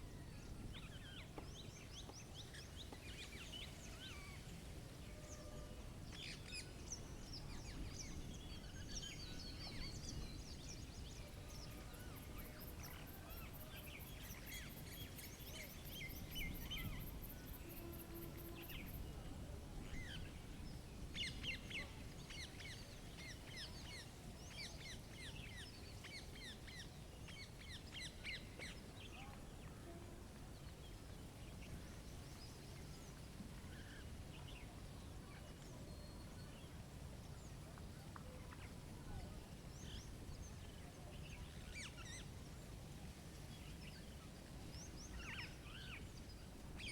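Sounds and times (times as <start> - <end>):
small songbirds chirping: 6.1 - 19.1.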